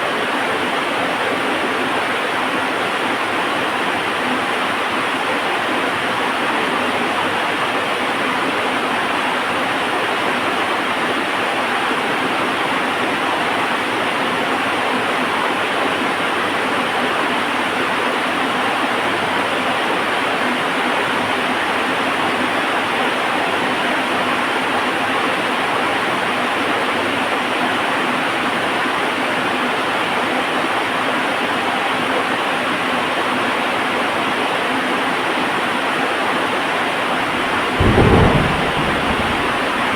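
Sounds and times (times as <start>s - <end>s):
heavy rain falling: 37.0s - 39.9s.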